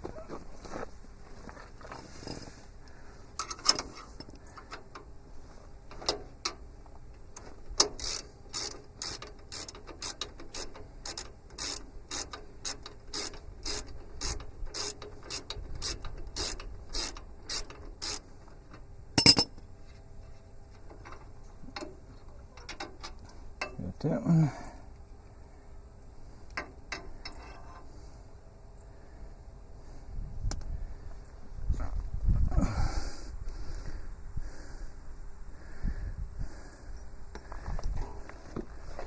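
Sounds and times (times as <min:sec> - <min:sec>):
ratchet wrench clicking: 0:07.8 - 0:18.2
metal clank: 0:19.2 - 0:19.6.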